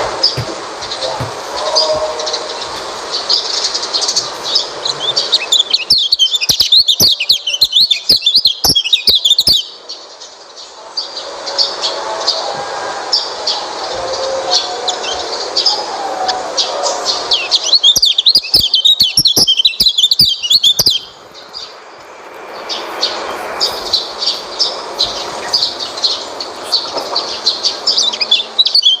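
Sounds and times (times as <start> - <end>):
bird chirping: 0.0 - 29.0
bird twittering with sharp clicks: 5.5 - 9.7, 17.6 - 21.7.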